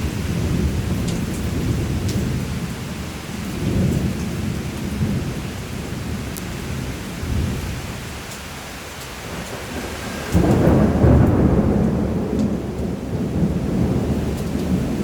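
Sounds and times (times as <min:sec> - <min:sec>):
rolling thunder: 0:00.0 - 0:07.9, 0:09.2 - 0:15.0
steady rain: 0:00.0 - 0:15.0.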